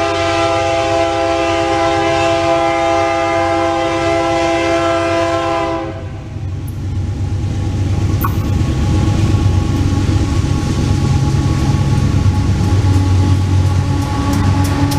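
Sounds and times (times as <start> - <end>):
locomotive air horn chord: 0.0 - 6.3
locomotive rumble: 0.0 - 14.9.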